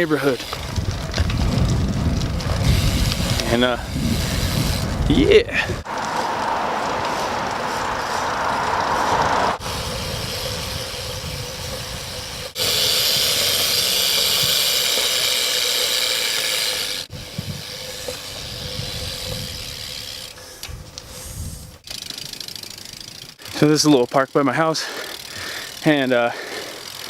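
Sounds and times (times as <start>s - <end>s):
bicycle tyres rolling on pavement: 0.0s - 27.0s
wind hiss on microphone: 0.5s - 5.8s, 17.1s - 21.8s.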